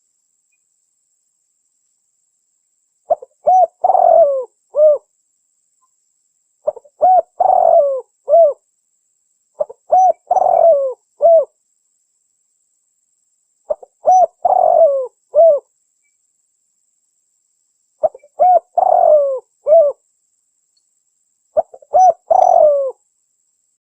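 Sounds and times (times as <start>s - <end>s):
dove cooing: 3.1s - 5.0s, 6.6s - 8.6s, 9.6s - 11.5s, 13.7s - 15.7s, 18.0s - 20.0s, 21.6s - 23.0s.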